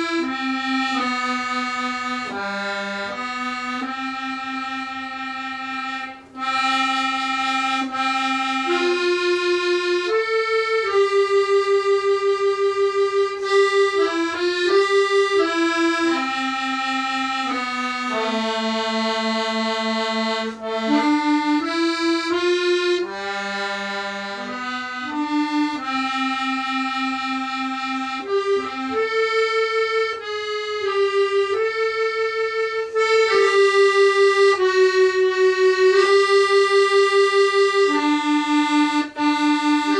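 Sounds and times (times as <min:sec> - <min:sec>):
accordion playing slow melody: 0:00.0 - 0:39.9.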